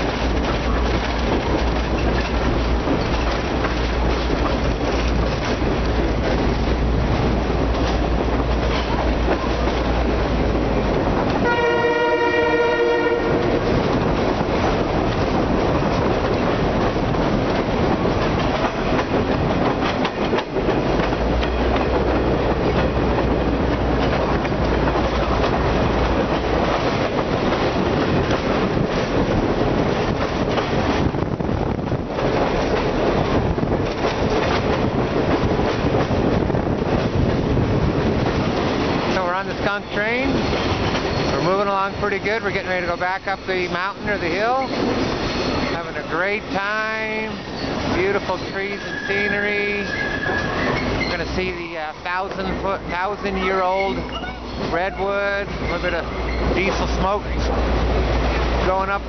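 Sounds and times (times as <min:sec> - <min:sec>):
train running on track: 0:00.0 - 0:59.0
wheels clacking over rails: 0:00.0 - 0:59.0
train horn: 0:11.4 - 0:13.7.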